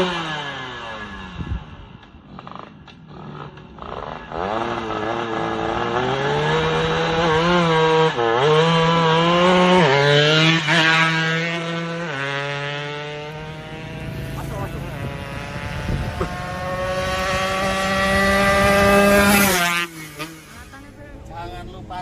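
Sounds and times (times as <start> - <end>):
two-stroke motorcycle engine revving: 0.0 - 21.0.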